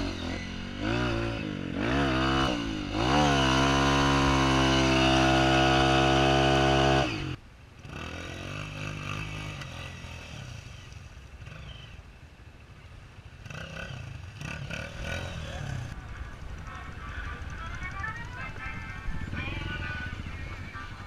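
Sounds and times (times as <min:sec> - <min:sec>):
motorcycle engine revving high: 0:00.0 - 0:12.0, 0:13.3 - 0:21.0
low engine rumble: 0:10.3 - 0:21.0.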